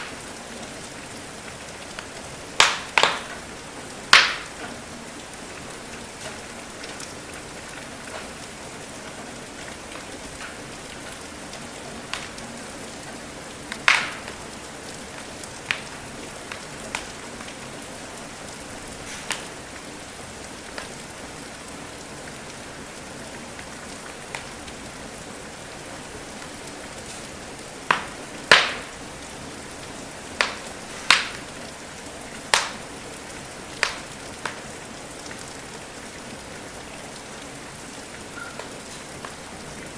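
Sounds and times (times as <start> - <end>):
rain hiss: 0.0 - 39.9
wood fire pops and crackles: 1.9 - 4.9, 6.1 - 8.5, 9.6 - 11.2, 12.0 - 12.6, 13.7 - 14.5, 15.1 - 17.6, 19.0 - 19.8, 20.7 - 20.9, 27.0 - 29.0, 30.3 - 31.6, 32.4 - 32.9, 33.8 - 34.7.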